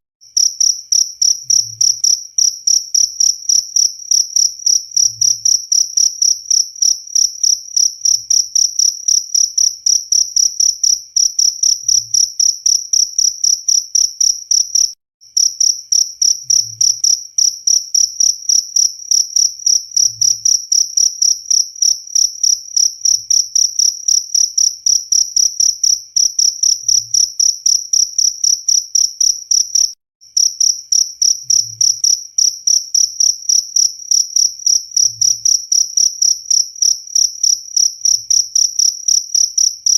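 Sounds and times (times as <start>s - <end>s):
cricket chirping: 0.3s - 39.9s.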